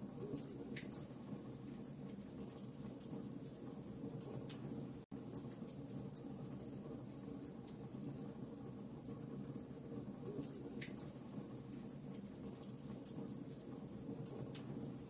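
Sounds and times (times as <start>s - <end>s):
logs burning in fireplace: 0.0s - 15.0s
fire crackles and pops: 9.0s - 15.0s.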